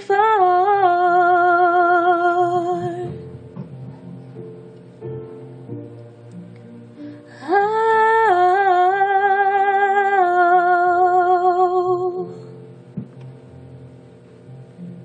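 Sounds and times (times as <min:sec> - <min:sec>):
woman singing a long note: 0:00.0 - 0:03.2, 0:07.4 - 0:12.4
soft plucked guitar: 0:02.6 - 0:06.8.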